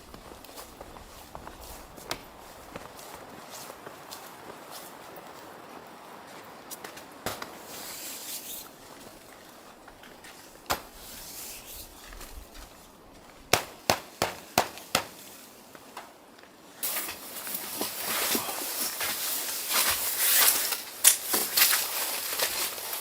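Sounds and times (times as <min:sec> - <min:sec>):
rough hissing rustling noise: 0:00.0 - 0:13.4, 0:14.0 - 0:16.0, 0:16.6 - 0:23.0.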